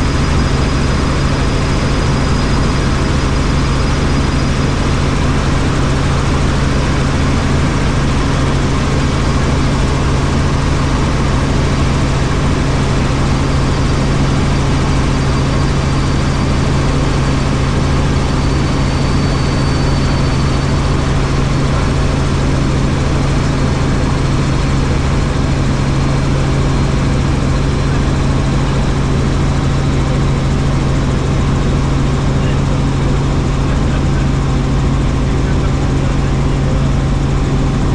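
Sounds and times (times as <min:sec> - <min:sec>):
helicopter engine and rotor: 0:00.0 - 0:37.9.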